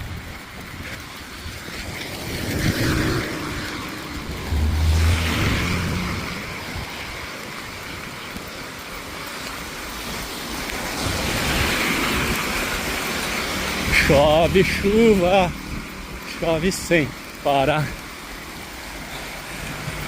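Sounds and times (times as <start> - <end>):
tyres hissing on wet road: 0.0 - 20.0
car engine hum: 0.4 - 8.3.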